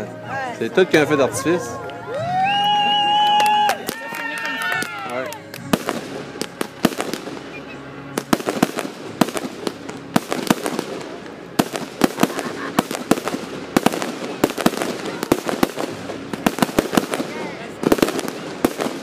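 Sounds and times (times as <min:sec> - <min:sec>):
fireworks bangs and crackles: 0:03.3 - 0:19.0
background hiss: 0:05.4 - 0:19.0.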